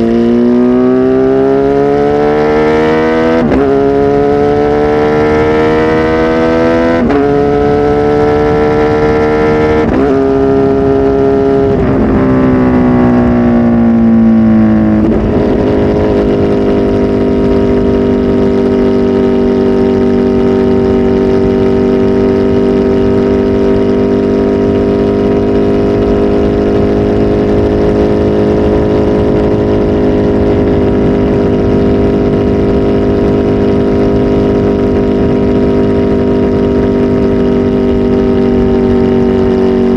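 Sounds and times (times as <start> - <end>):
motorcycle accelerating through gears: 0.0 - 39.9.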